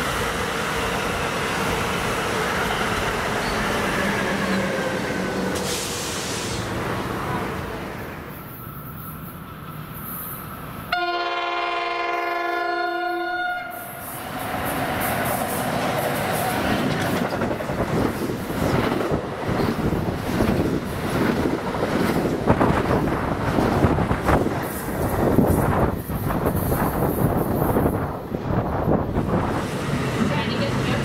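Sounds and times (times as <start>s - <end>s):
train passing: 0.0s - 31.0s
train horn chord: 10.9s - 13.8s
train wheel clatter: 14.4s - 31.0s.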